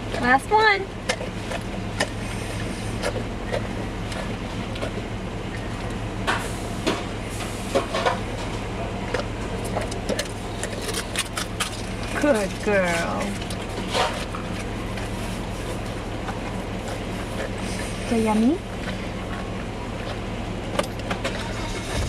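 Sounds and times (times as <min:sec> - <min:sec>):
vehicle engine idling: 0:00.0 - 0:22.0
dog licking and biting: 0:01.0 - 0:06.0, 0:09.1 - 0:12.2.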